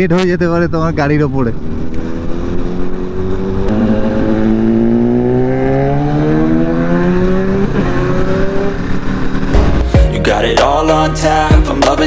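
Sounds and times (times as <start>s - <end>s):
motorcycle engine accelerating: 0.8s - 10.0s.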